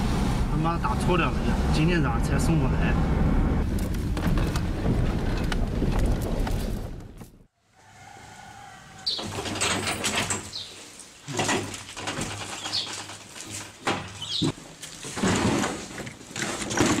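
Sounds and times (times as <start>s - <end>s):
small birds chirping: 9.1s - 9.3s, 10.5s - 11.0s, 12.6s - 13.0s, 14.1s - 14.5s.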